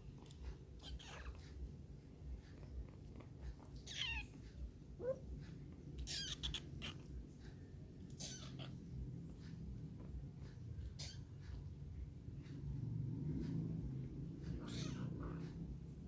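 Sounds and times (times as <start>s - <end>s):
kitten mewing: 3.8s - 4.3s, 5.0s - 5.3s, 6.0s - 7.1s, 8.1s - 8.9s, 10.9s - 11.4s, 14.6s - 15.4s.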